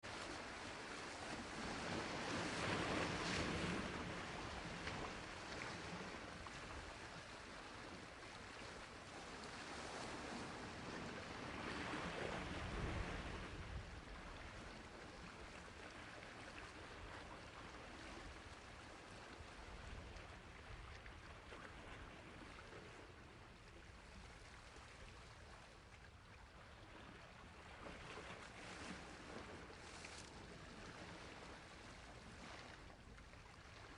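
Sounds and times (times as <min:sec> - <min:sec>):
sea waves washing onto shore: 0:00.1 - 0:23.2.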